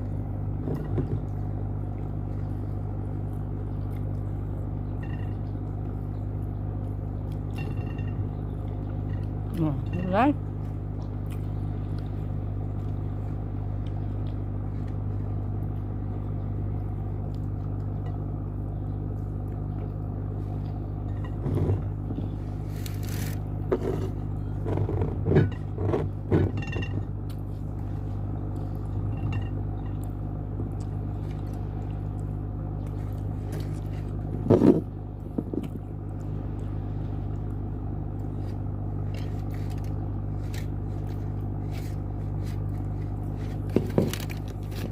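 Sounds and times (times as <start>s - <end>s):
steady low hum: 0.0s - 44.9s
chewing and biting: 0.8s - 6.0s, 10.5s - 15.9s, 29.8s - 37.6s.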